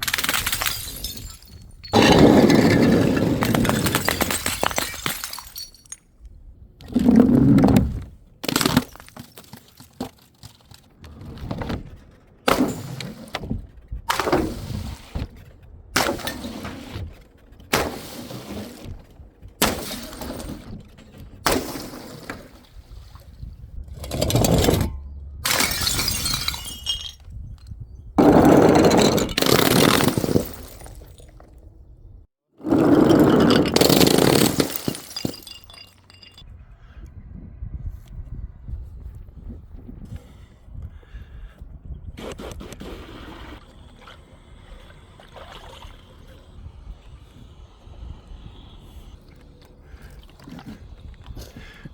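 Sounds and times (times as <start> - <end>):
glass bottles shattering: 0.0 - 6.1, 24.0 - 27.4, 28.2 - 31.4, 32.7 - 36.4.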